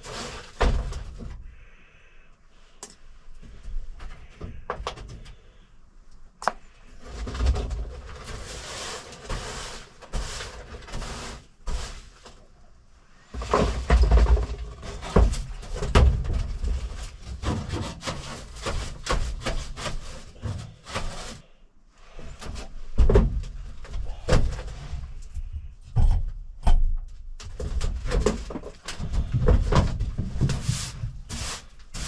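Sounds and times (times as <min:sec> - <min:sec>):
knocking and scraping in truck cab: 0:13.4 - 0:21.4, 0:27.4 - 0:32.0.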